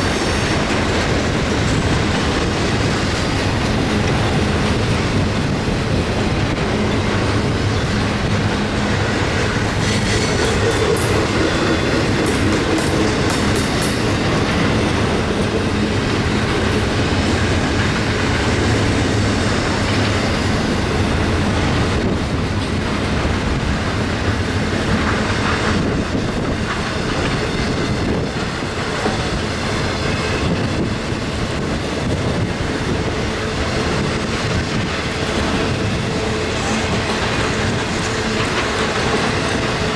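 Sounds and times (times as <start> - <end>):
wheels clicking over rail joints: 0.0 - 30.4
steel wheels rolling on rail: 0.0 - 39.9.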